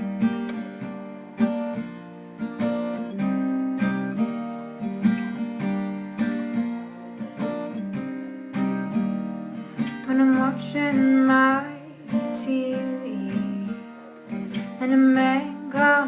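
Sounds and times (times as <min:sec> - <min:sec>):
guitar chords: 0:00.0 - 0:16.0
person singing: 0:10.0 - 0:13.7, 0:14.6 - 0:16.0.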